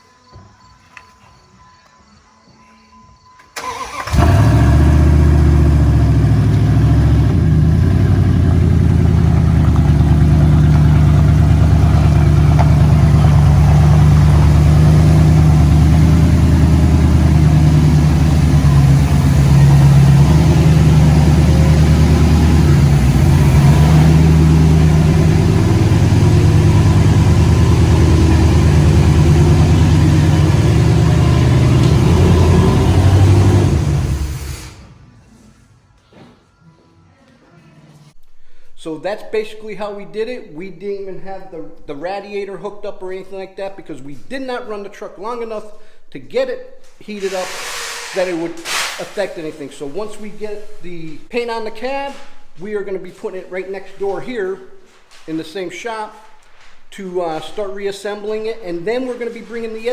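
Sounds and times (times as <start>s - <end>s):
loud engine running: 4.1s - 35.1s.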